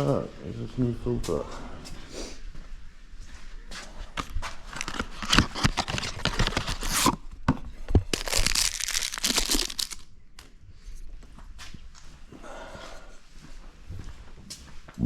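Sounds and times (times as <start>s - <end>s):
packaging tearing and crumpling: 4.2s - 7.2s, 8.0s - 10.1s.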